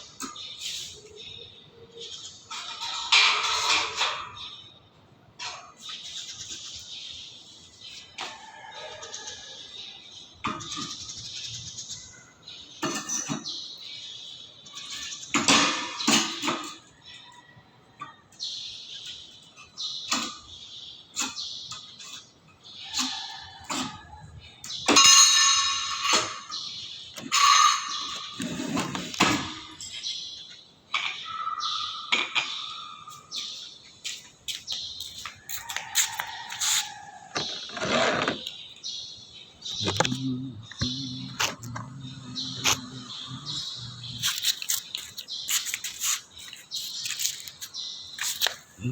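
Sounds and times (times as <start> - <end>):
noisy metal scraping: 27.2 - 29.8, 39.7 - 47.6.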